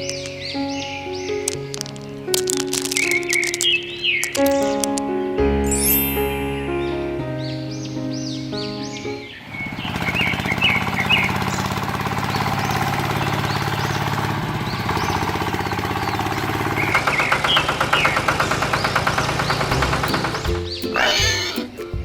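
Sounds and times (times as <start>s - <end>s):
bird chirps: 0.0s - 5.1s, 13.4s - 21.8s
tractor engine running: 9.8s - 22.0s.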